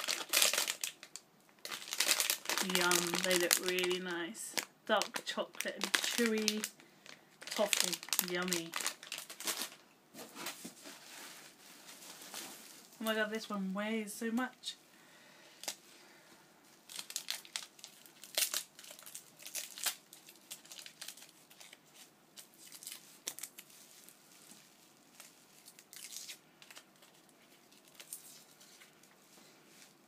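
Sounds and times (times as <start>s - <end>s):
gift wrapping tearing and crumpling: 0.0s - 9.8s, 16.8s - 28.9s.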